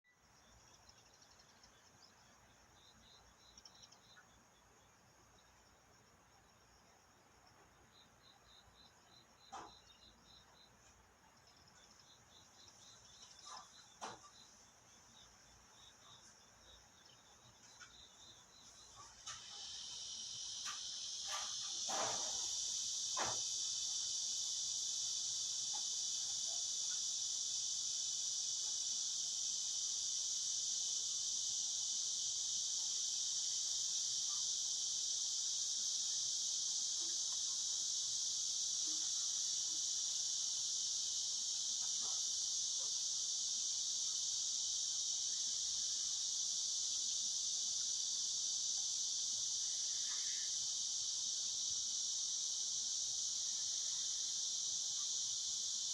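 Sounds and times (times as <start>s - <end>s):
cicadas buzzing: 0.2s - 55.9s
faint ticks: 17.0s - 18.2s, 18.9s - 20.0s, 20.6s - 22.6s.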